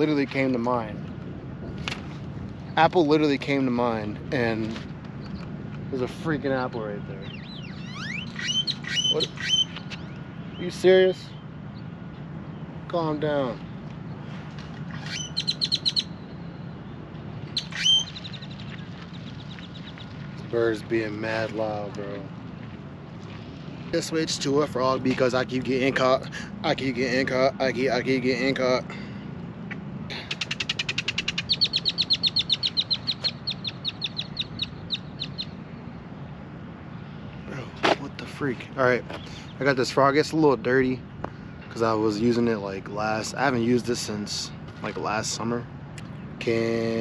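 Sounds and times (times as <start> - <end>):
songbird singing: 0.0 - 47.0
bird calling rapid high notes: 7.2 - 11.5, 14.9 - 16.5, 17.5 - 20.0, 30.1 - 35.5.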